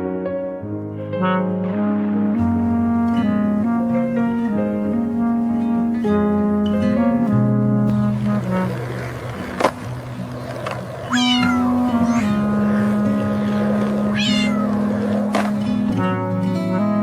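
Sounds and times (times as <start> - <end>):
cat meowing: 11.0 - 12.6, 13.9 - 15.4.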